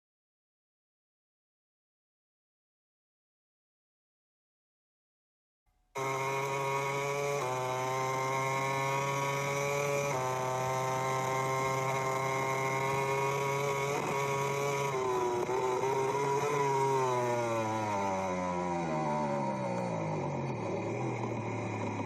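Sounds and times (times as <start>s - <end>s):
racing motorcycle engine high revs: 6.0s - 22.0s.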